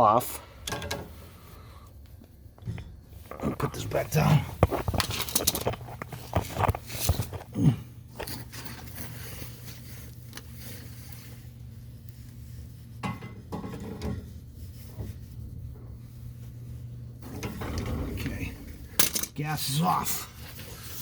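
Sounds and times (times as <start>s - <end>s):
steady low hum: 0.0s - 21.0s
metal tools clinking and scraping: 3.4s - 7.4s, 19.0s - 20.0s.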